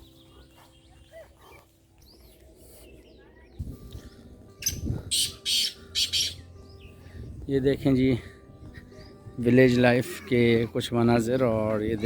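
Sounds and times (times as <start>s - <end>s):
faint bird calls and chirps: 4.6s - 7.0s.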